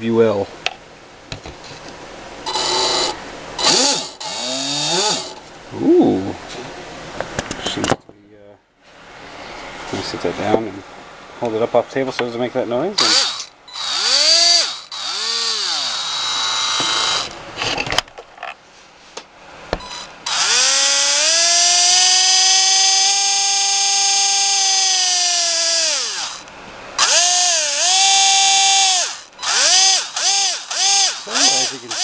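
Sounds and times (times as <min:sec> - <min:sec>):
electric motor whining: 0:02.5 - 0:05.4, 0:13.0 - 0:17.4, 0:19.8 - 0:32.0.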